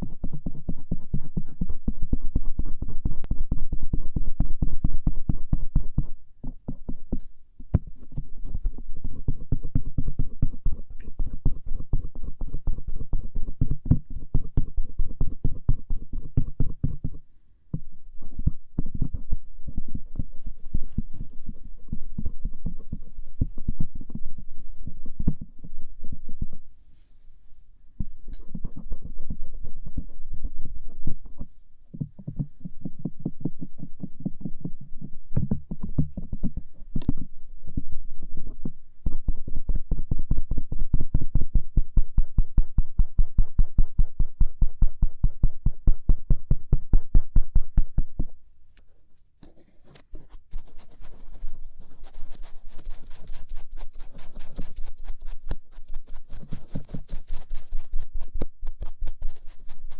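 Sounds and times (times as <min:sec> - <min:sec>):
cotton swab brushing ear: 0:49.4 - 0:59.9.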